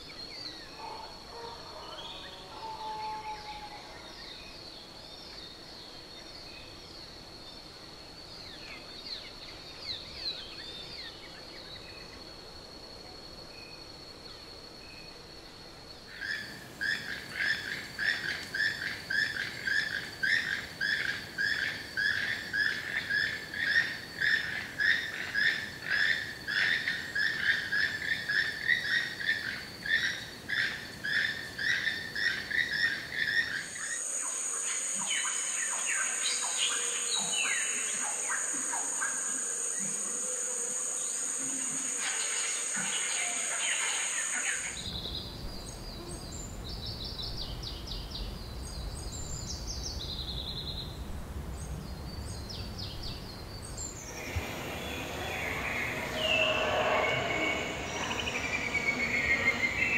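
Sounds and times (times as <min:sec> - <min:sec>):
high insect drone: 0:00.0 - 0:59.9
multi-tone insect buzz: 0:00.0 - 0:59.9
chirps: 0:52.9 - 0:59.9
loud animal call: 0:54.0 - 0:59.9.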